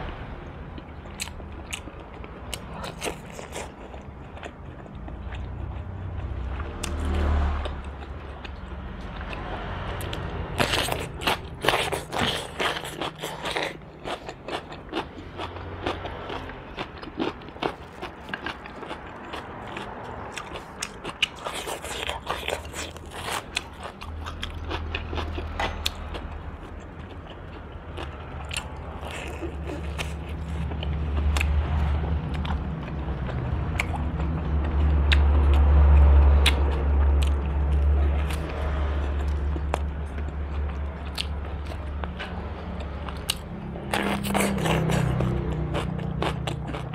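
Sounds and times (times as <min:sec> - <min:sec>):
low hum: 0:00.0 - 0:02.8
crunchy chewing: 0:00.8 - 0:46.9.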